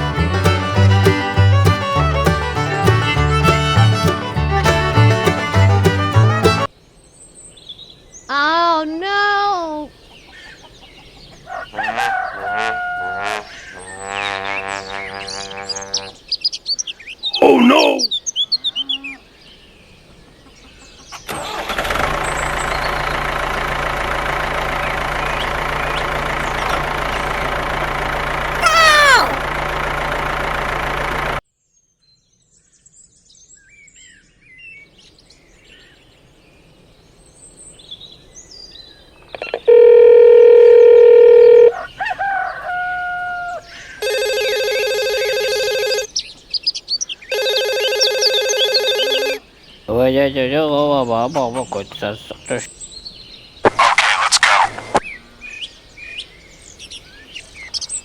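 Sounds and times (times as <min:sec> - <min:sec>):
engine running with low hum: 0:21.5 - 0:28.6, 0:29.4 - 0:31.4.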